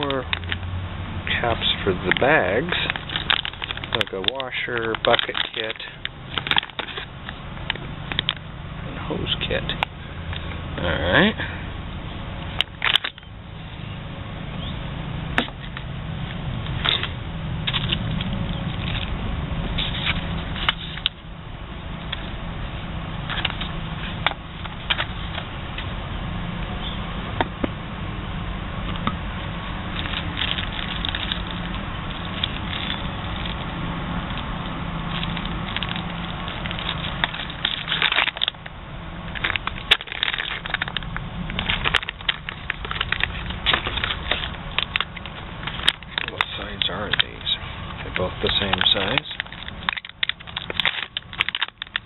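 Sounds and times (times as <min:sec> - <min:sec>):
sharp clicks and crackles: 0:00.0 - 0:00.7, 0:01.3 - 0:08.5, 0:12.4 - 0:13.3, 0:15.4 - 0:21.2, 0:23.2 - 0:25.9, 0:29.8 - 0:52.0
plastic packaging crinkling: 0:01.6 - 0:07.4, 0:29.9 - 0:34.4, 0:35.0 - 0:38.7, 0:39.3 - 0:52.0.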